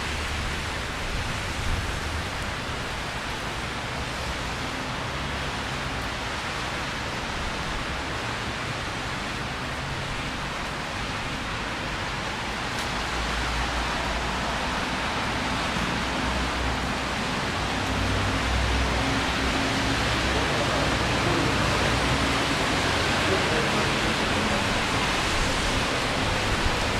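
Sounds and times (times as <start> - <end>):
rain falling on street: 0.0 - 26.9.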